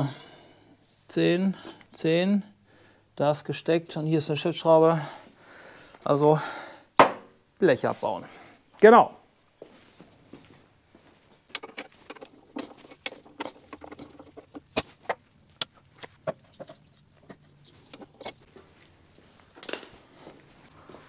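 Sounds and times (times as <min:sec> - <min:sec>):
hand tools tapping on metal: 0:11.5 - 0:18.9.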